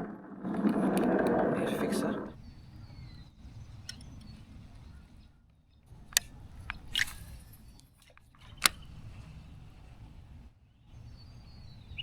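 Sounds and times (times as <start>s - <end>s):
low steady rumble: 0.0s - 2.4s.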